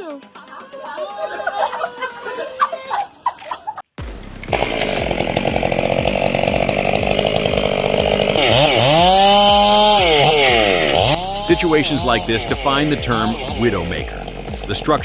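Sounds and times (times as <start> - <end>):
chainsaw running: 4.0 - 15.0.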